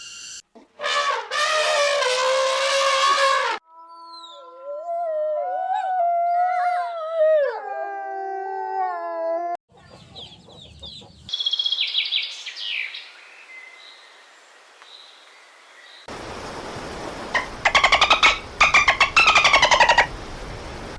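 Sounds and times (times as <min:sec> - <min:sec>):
howl-like animal call: 0:02.7 - 0:09.6.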